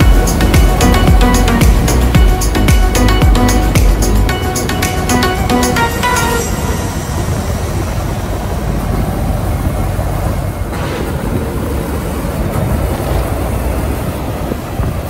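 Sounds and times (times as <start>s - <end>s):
road and tyre noise: 0.0s - 15.0s
truck engine rumble: 0.0s - 15.0s.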